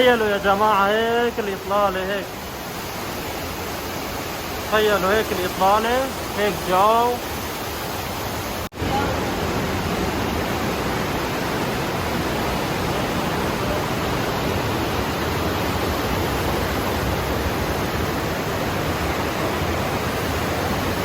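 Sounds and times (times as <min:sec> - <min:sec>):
river rushing whitewater: 0:00.0 - 0:21.0.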